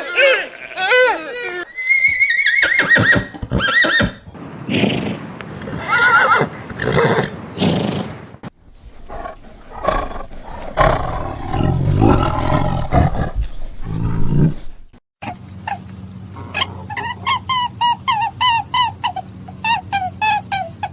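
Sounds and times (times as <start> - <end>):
horse neighing: 0.0 - 8.3, 9.8 - 14.9
big cat roaring and growling: 9.1 - 14.9.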